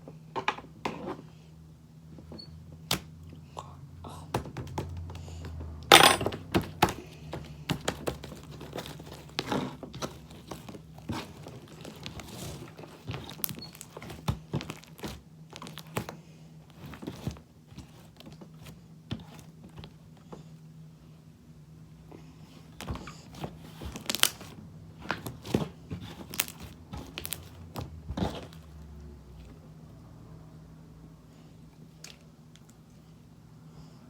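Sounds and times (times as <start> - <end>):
slime squishing with wet crackles: 22.7 - 28.8.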